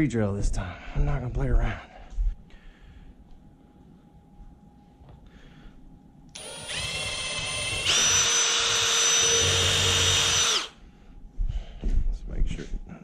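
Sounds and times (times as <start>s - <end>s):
cordless drill boring into wood: 6.4s - 10.8s.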